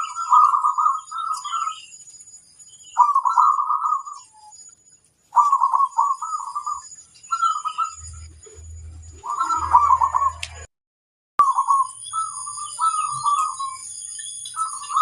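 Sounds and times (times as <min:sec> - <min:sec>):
dove cooing: 0:00.0 - 0:01.8, 0:03.0 - 0:04.2, 0:05.3 - 0:08.0, 0:11.5 - 0:13.8.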